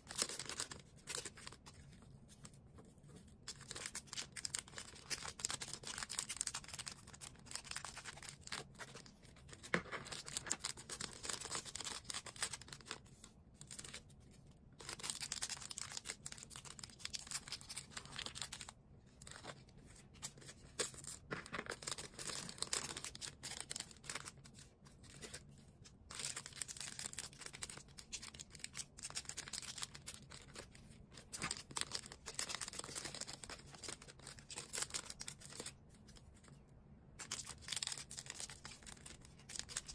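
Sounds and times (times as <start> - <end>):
packaging rustling and crinkling: 14.8 - 25.5.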